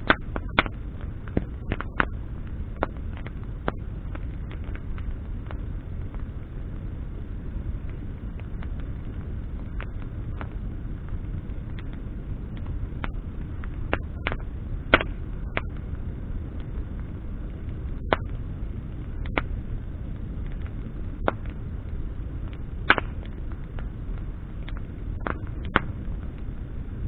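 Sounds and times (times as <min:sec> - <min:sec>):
bonfire crackling and popping: 0:00.0 - 0:27.0
fire low rumble: 0:00.0 - 0:27.0.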